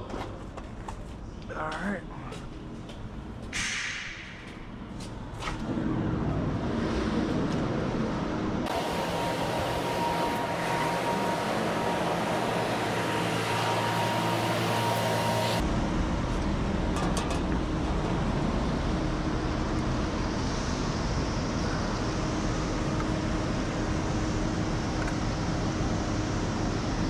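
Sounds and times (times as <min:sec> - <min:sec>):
engine running: 0:05.2 - 0:27.0
thin steady whine: 0:08.7 - 0:16.8.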